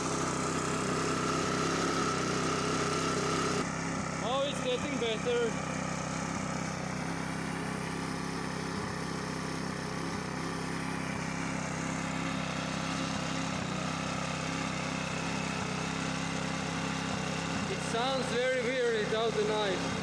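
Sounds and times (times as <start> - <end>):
lawn mower engine running: 0.0 - 20.0.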